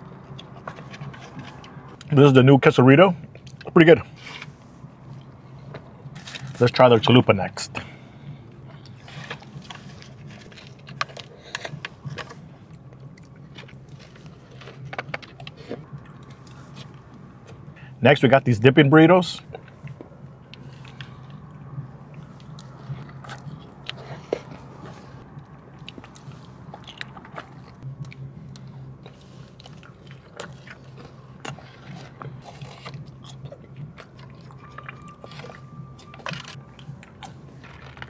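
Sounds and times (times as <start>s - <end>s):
steady low hum: 0.0s - 38.0s
chewing mouth clicks and smacks: 3.2s - 3.7s, 19.4s - 38.0s.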